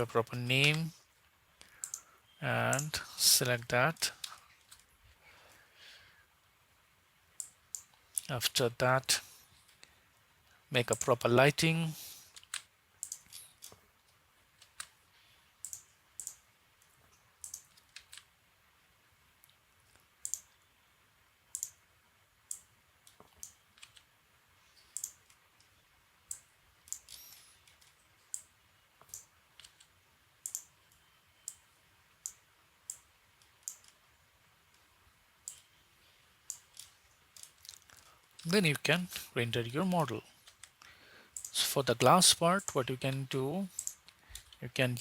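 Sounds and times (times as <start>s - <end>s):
computer mouse clicks: 1.6s - 2.1s, 12.3s - 13.8s, 15.6s - 18.3s, 19.4s - 20.6s, 21.5s - 21.8s, 22.5s - 24.1s, 24.8s - 34.0s, 35.4s - 35.8s, 36.4s - 38.4s, 40.4s - 41.5s, 43.7s - 44.6s.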